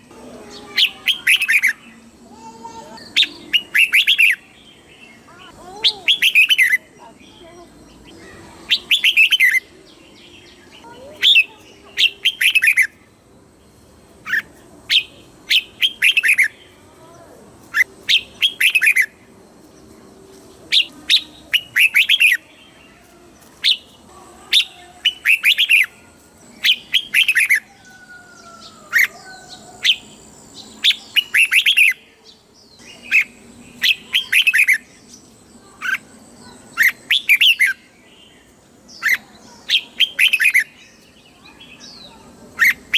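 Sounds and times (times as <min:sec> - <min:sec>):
bird singing whistled notes: 0:03.0 - 0:13.0, 0:14.2 - 0:16.6, 0:17.7 - 0:19.2, 0:20.7 - 0:22.5, 0:24.6 - 0:35.2, 0:36.7 - 0:38.4.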